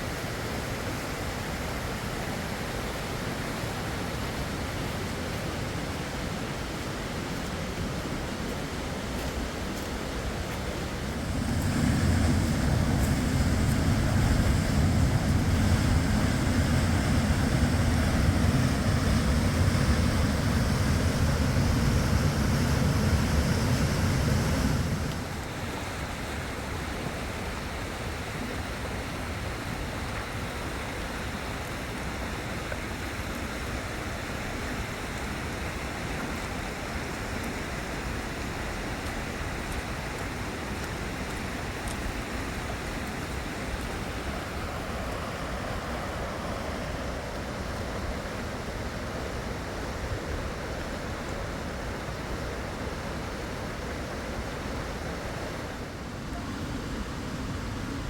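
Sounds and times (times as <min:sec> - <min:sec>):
rushing river water: 0:00.0 - 0:58.0
wind on microphone: 0:09.4 - 0:25.5.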